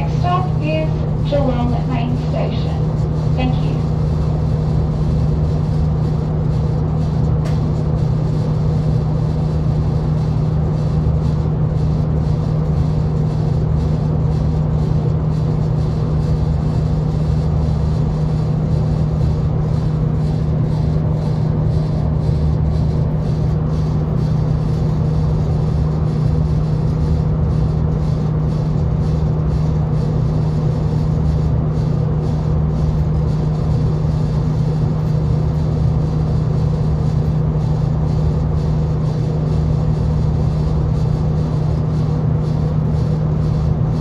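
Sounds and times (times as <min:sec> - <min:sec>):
train carriage drone and rumble: 0:00.0 - 0:44.0.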